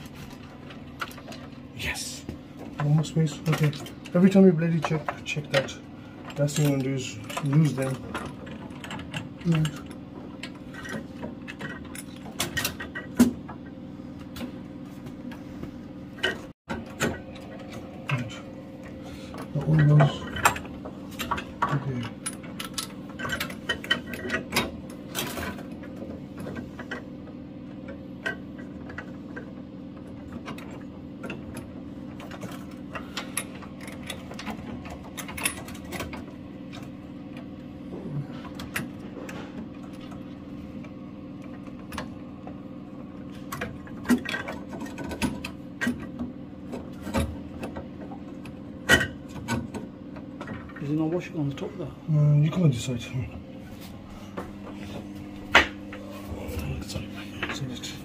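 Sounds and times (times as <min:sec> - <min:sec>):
steady low hum: 0:00.0 - 0:58.0
clicks and knocks of tools: 0:02.6 - 0:14.6, 0:16.2 - 0:37.5, 0:43.4 - 0:50.9.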